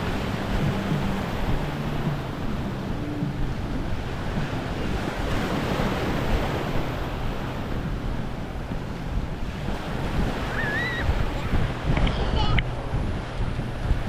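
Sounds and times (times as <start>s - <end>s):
small waves on sandy shore: 0.0s - 14.0s
wind buffeting microphone: 0.0s - 14.0s
wavering high-pitched call: 10.4s - 11.2s.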